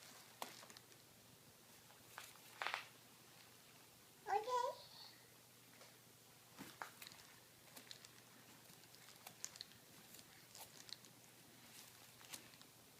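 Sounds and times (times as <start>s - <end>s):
faint small clicks and crunches: 0.0s - 1.0s, 1.9s - 3.5s, 6.6s - 12.8s.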